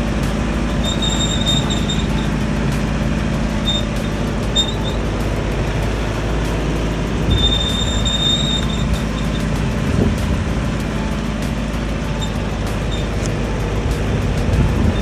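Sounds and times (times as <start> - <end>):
thin high squeal: 0.0 - 15.0
vehicle rumble: 0.0 - 15.0.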